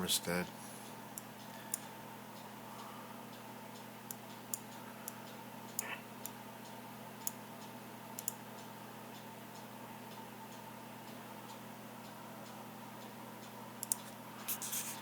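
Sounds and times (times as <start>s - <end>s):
steady electrical hum: 0.0s - 15.0s
computer mouse clicking: 8.2s - 8.4s, 13.8s - 14.1s.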